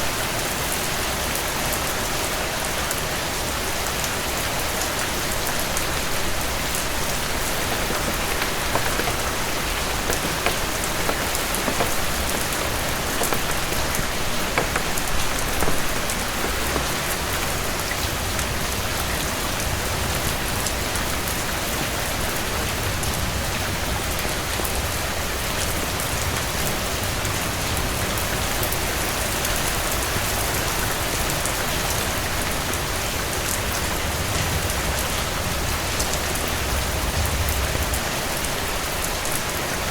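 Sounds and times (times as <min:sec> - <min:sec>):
wood fire crackling: 0:06.2 - 0:18.4.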